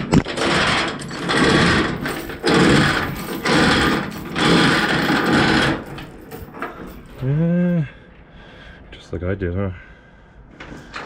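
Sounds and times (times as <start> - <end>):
metal chain rattling: 0.0 - 7.4.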